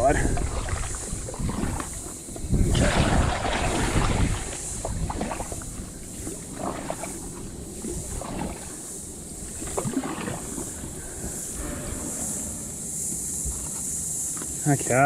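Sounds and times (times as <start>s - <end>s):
splashes and squelches in mud: 0.0s - 11.0s
insects droning: 0.0s - 15.0s.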